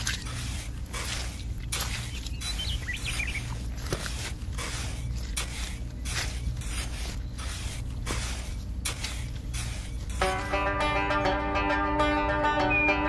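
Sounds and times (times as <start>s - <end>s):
trowel scraping wet concrete: 0.0s - 10.5s
low background hum: 0.0s - 13.0s
faint bird chirps: 1.9s - 3.6s.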